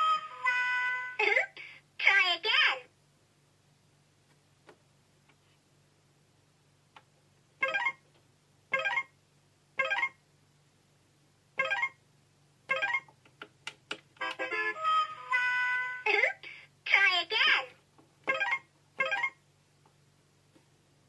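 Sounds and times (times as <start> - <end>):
toy electronic blips: 8.7 - 9.2, 9.8 - 10.2, 18.3 - 19.4.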